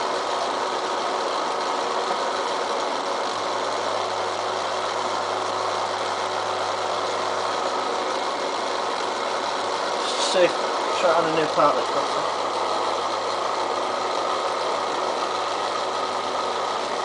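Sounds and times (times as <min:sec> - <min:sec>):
milling machine cutting steel: 0:00.0 - 0:17.0.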